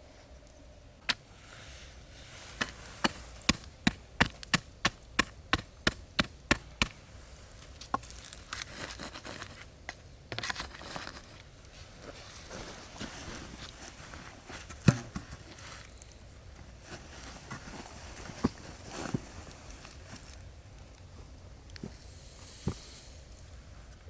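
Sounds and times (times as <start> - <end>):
crackles and rustles: 6.9 - 24.0.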